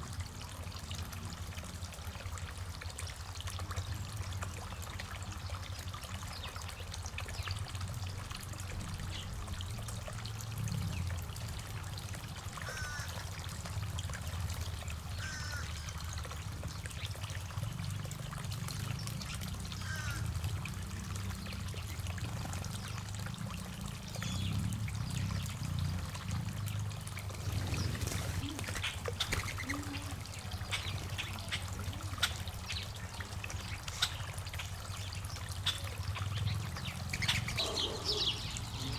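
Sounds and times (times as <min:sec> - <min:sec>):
water trickling: 0:00.0 - 0:38.9.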